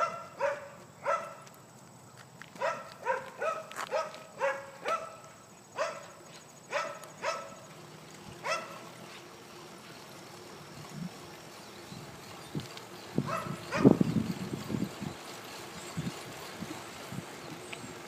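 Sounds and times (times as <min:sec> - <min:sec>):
small dog yapping: 0:02.6 - 0:05.2.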